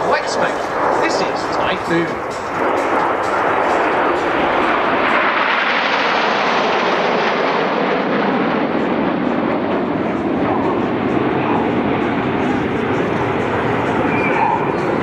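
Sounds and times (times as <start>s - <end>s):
jets flying past: 0.0s - 15.0s.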